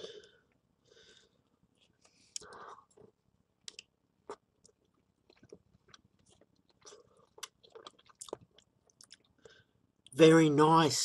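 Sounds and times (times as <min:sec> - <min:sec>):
wet mouth clicks and smacks: 0:03.6 - 0:09.3.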